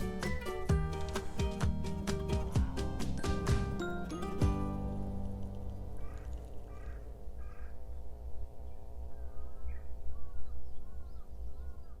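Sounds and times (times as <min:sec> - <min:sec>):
low rumble: 0:01.0 - 0:11.6
short falling bird calls: 0:05.9 - 0:12.0
crow cawing: 0:06.0 - 0:08.0.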